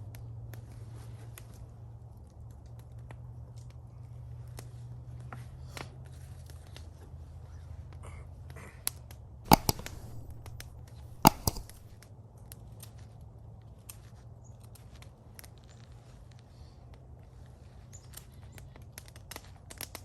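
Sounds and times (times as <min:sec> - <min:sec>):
loud sharp cracks: 0:09.5 - 0:12.0.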